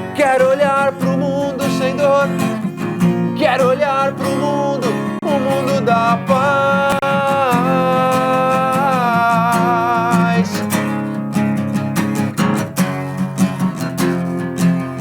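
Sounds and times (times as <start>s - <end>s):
strummed guitar: 0.0s - 15.0s
man singing long note: 3.7s - 10.6s.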